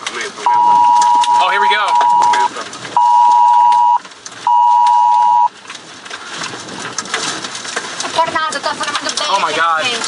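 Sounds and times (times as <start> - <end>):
phone alert tone beeps: 0.5 - 5.5.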